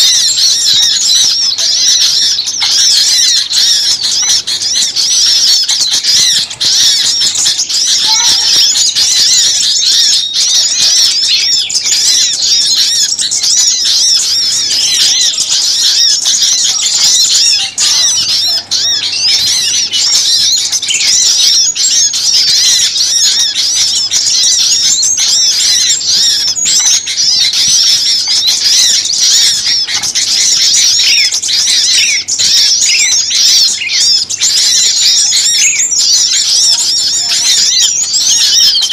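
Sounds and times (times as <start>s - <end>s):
small songbirds chirping: 0.0s - 38.9s.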